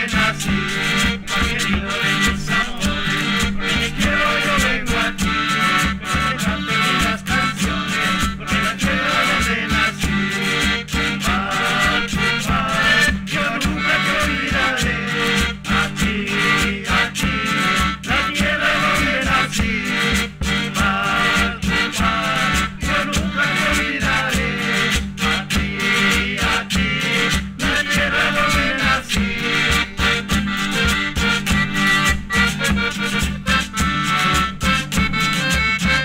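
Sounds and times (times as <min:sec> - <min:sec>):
steady bass beat: 0:00.0 - 0:16.6
folk band playing: 0:00.0 - 0:36.0.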